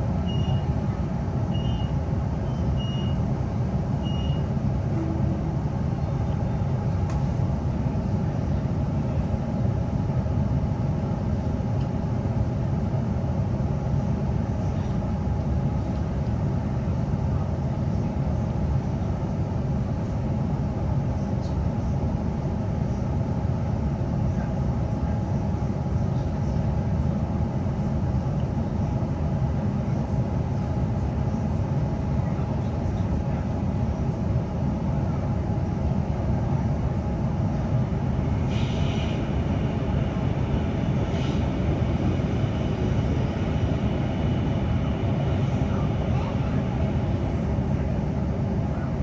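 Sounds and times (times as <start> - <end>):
electric train rumbling: 0.0 - 49.0
high warning beeps: 0.2 - 0.7, 4.0 - 4.5.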